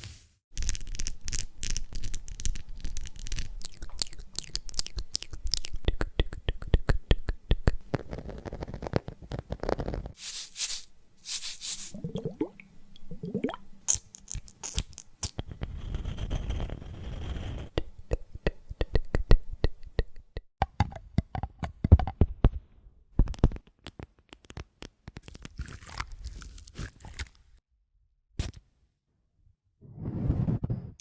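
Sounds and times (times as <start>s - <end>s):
squishy sliding sounds: 10.2s - 12.4s.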